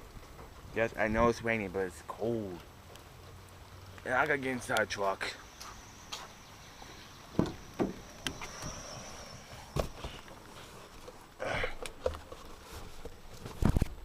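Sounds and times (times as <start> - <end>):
steady rain: 0.0 - 14.0
footsteps and microphone handling: 5.4 - 14.0.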